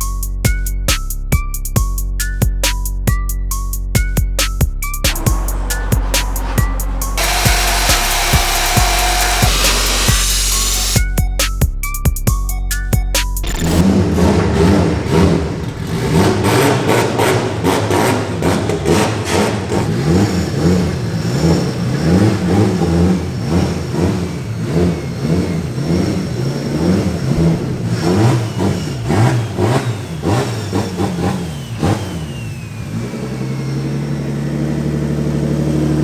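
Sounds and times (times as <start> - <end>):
car engine revving and idling: 4.8 - 11.0, 13.4 - 36.0.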